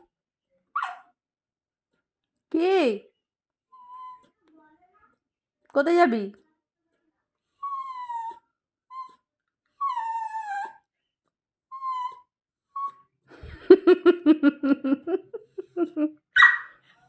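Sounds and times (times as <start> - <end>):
dog whining: 7.6 - 9.2, 9.8 - 10.8, 11.7 - 13.0.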